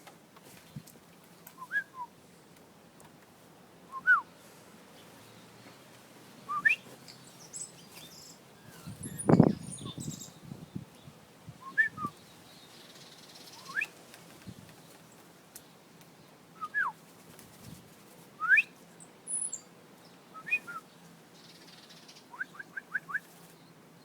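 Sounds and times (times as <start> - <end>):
whistled bird calls: 1.6 - 2.1, 6.5 - 6.9, 13.3 - 14.0, 20.3 - 23.3.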